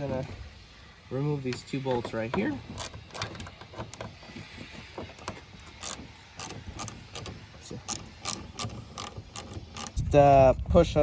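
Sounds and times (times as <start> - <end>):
ratchet wrench clicking: 2.6 - 4.0, 5.2 - 10.2.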